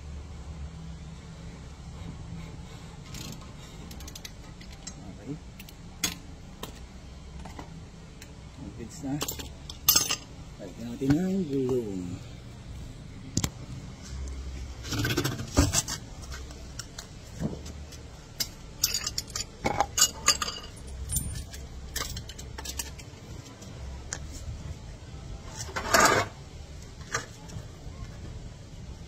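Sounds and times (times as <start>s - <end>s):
metal tools clinking: 9.1s - 10.3s, 18.4s - 23.1s.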